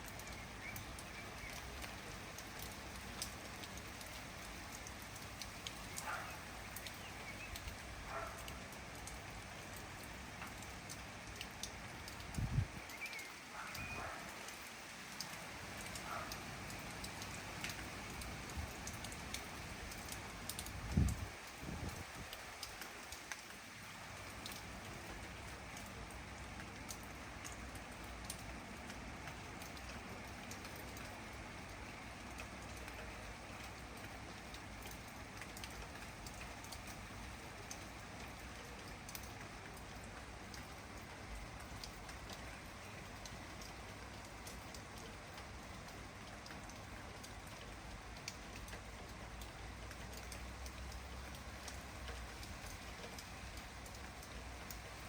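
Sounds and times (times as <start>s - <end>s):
rain falling: 0.0s - 55.0s
raindrops striking close by: 0.0s - 55.0s
faint bird chirps: 12.8s - 14.2s.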